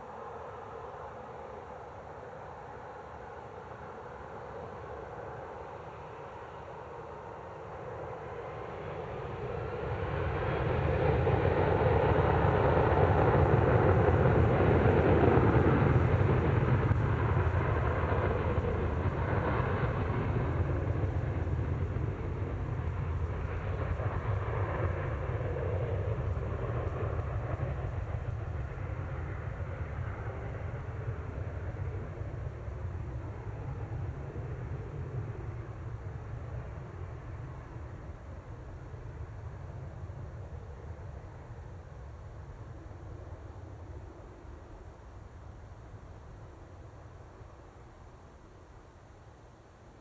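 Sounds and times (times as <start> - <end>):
jet engines passing: 7.8 - 44.9.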